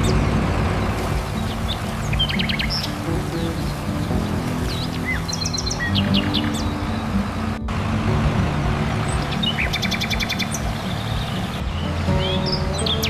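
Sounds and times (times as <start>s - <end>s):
birds chirping in trills: 0.0s - 13.0s.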